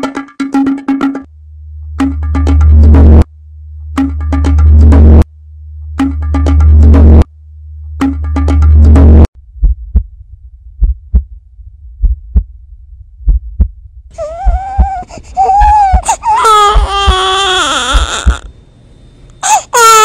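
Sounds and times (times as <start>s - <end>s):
slow heartbeat thumps: 8.8s - 17.3s
baby crying: 14.2s - 18.5s, 19.4s - 20.0s.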